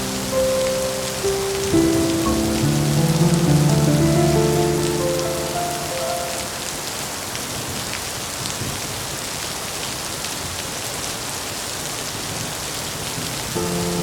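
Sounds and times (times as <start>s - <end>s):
rain falling: 0.0s - 14.0s
rain drop ticks: 1.0s - 6.6s.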